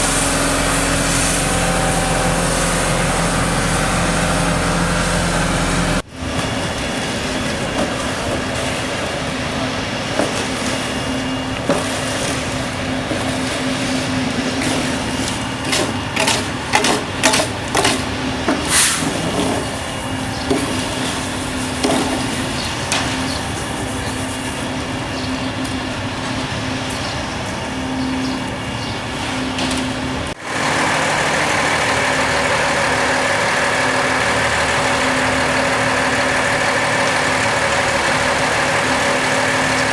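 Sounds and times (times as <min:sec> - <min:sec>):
heavy machinery engine running: 0:00.0 - 0:39.9
sharp clanks and knocks: 0:15.7 - 0:18.7.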